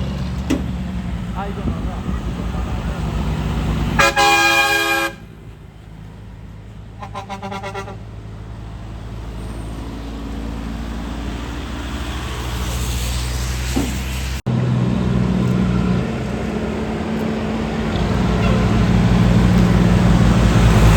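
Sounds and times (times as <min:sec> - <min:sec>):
heavy truck engine rumble: 0:00.0 - 0:20.9
truck horn blasting: 0:03.9 - 0:05.4, 0:07.0 - 0:08.1, 0:18.0 - 0:19.5.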